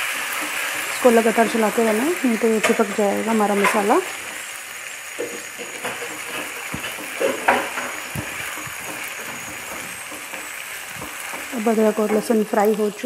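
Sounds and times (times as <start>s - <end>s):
paste sizzling in hot oil: 0.0s - 13.0s
spatula scraping pan: 5.1s - 12.4s.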